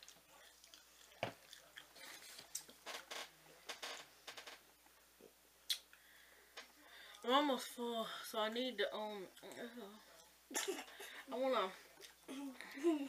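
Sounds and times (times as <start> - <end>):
people chewing food: 0.0 - 4.6, 9.3 - 13.0
mouth clicks: 5.7 - 6.0.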